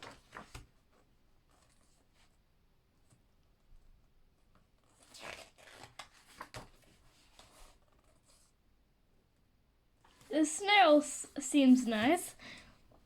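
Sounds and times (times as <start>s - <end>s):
book pages turning: 0.0s - 0.8s, 4.8s - 8.5s.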